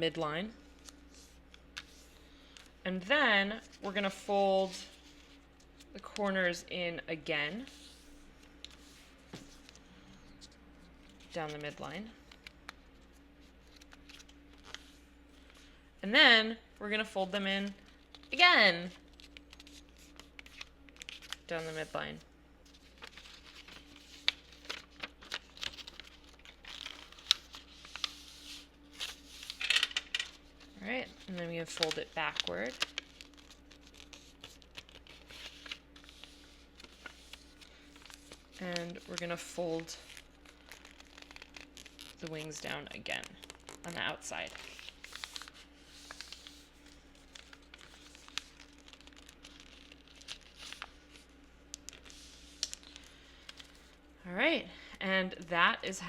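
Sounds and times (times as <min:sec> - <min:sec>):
paper folding and crinkling: 0:00.5 - 0:06.4, 0:07.4 - 0:15.8, 0:17.4 - 0:54.1
crisp paper clicks: 0:51.7 - 0:53.7.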